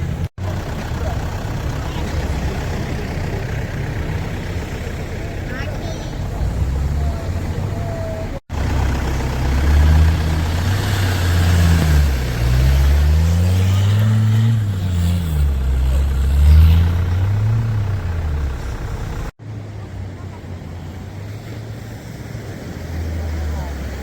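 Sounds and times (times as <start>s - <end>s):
off-road vehicle engine revving: 0.0s - 19.4s, 20.2s - 24.0s.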